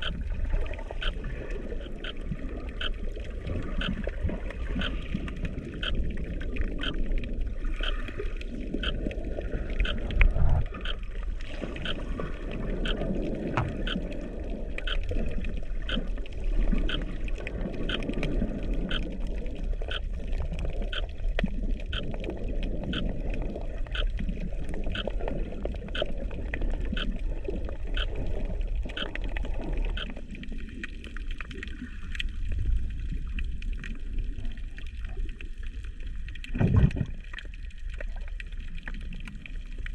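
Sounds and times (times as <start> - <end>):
faint ticks: 0.0 - 11.0, 11.8 - 12.1, 12.8 - 27.2, 27.8 - 32.4
muffled underwater water rumble: 0.0 - 39.9.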